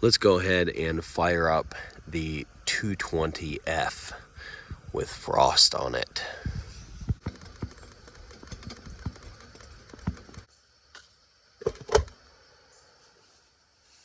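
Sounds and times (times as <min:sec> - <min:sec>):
gas lantern clicks and knocks: 0:07.1 - 0:12.2.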